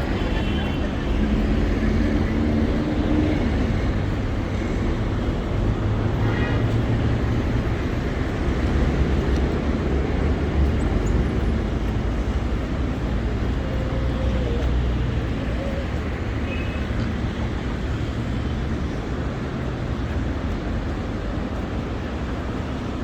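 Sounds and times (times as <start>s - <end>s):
traffic rumble: 0.0s - 23.0s
faint voices: 11.5s - 17.7s.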